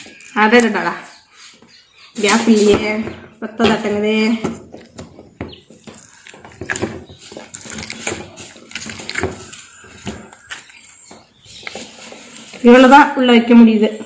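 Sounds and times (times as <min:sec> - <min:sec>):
slime squelching: 0:04.8 - 0:12.9.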